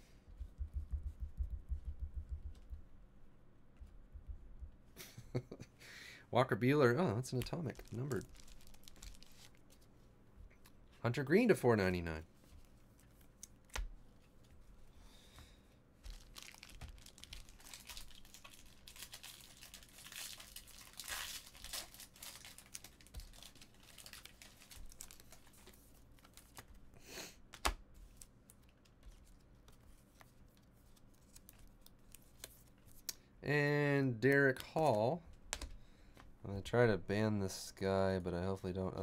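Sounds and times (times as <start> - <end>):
card wrappers tearing and crinkling: 7.3 - 9.9, 16.1 - 26.8
wrapper crackle: 7.4 - 9.9, 16.1 - 26.7.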